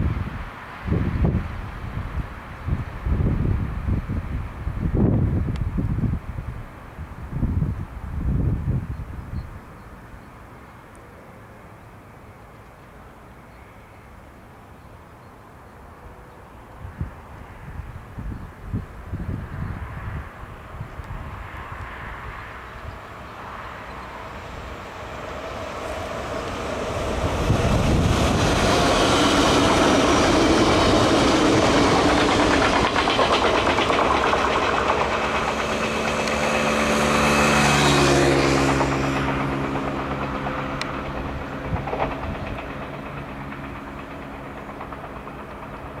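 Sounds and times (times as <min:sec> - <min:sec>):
train steady tones: 0:09.4 - 0:46.0
train wheels on rails: 0:19.8 - 0:46.0.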